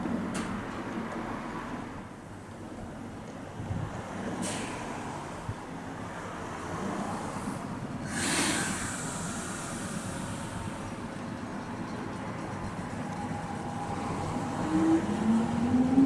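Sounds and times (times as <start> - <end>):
electric train rumbling: 0.0 - 16.0
compressed air hissing: 8.0 - 11.1.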